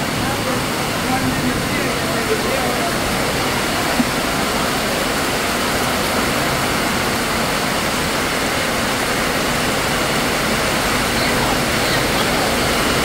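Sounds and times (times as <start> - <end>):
heavy rain on wet concrete: 0.0 - 13.0.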